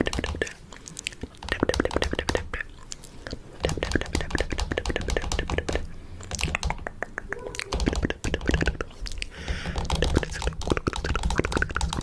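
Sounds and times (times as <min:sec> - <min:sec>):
mouth sounds: 0:00.0 - 0:12.0
fingernails tapping on camera: 0:03.6 - 0:08.8, 0:09.4 - 0:12.0.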